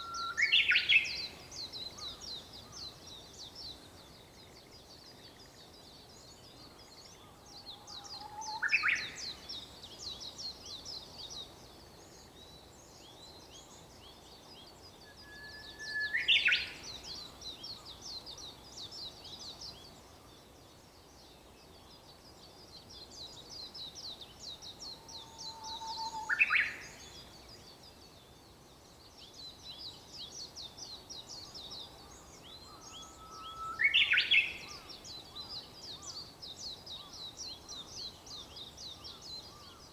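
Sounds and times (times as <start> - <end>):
bird singing whistled song: 0.0 - 1.4, 15.0 - 16.8, 25.1 - 27.2, 32.6 - 34.9.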